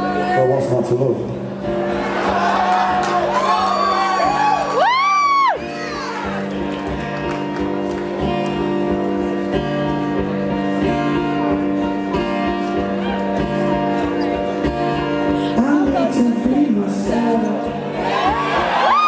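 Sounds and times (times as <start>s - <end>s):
rock band playing live: 0.0s - 19.0s
crowd whooping: 1.9s - 7.5s, 18.0s - 19.0s.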